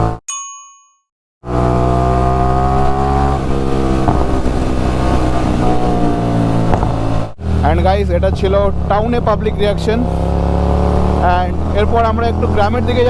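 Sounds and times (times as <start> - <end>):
loud motorcycle exhaust: 1.5 - 13.0.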